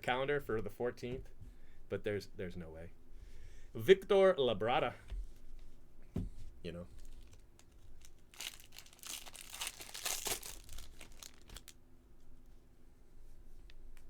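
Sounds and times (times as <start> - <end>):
foil wrapper crinkling and tearing: 7.0 - 11.7.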